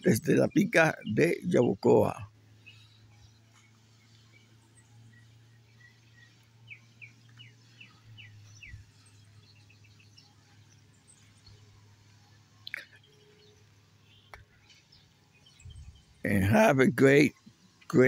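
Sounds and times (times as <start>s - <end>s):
small bird chirping: 0.0s - 16.7s
low steady hum: 0.0s - 18.0s.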